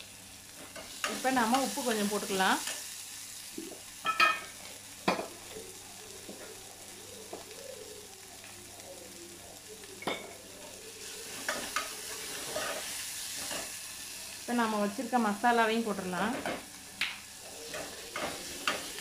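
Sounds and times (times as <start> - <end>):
food sizzling in oil: 0.0 - 19.0.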